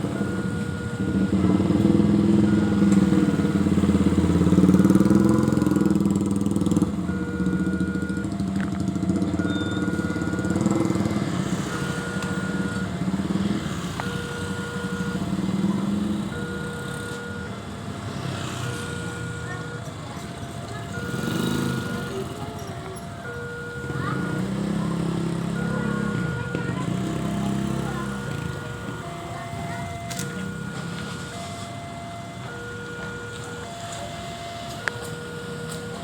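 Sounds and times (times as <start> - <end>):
level crossing two-tone alarm: 0.0 - 36.0
low engine rumble: 0.0 - 36.0.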